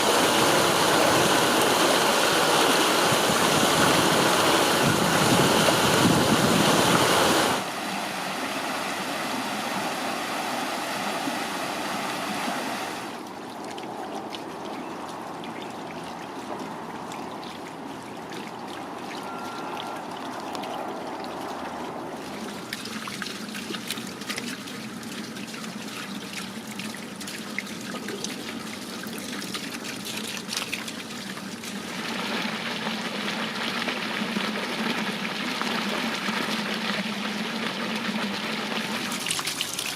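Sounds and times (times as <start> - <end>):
water trickling down stone channels: 13.0 - 39.9.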